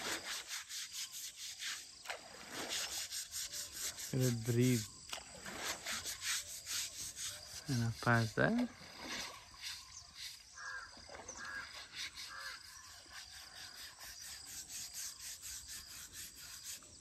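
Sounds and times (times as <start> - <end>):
bird calling: 5.9 - 15.9.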